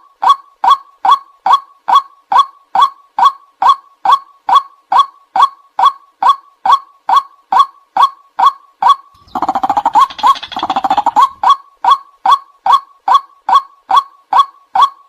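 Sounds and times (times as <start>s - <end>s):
bird calling kwak notes: 9.2s - 11.6s
overlapping bird calls: 9.2s - 11.6s.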